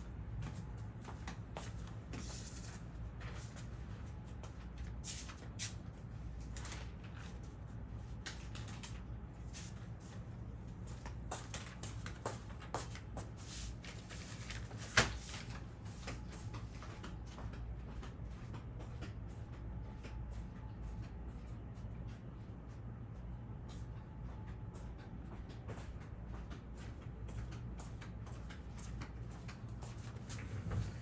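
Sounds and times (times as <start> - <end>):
steady low hum: 15.7 - 31.0.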